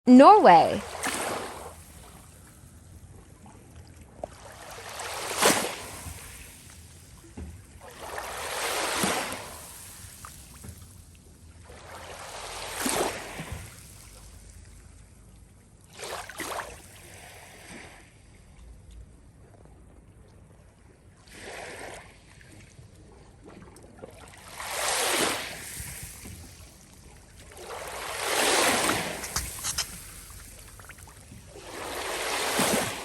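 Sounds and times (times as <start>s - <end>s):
water washing in surges: 27.4s - 33.0s.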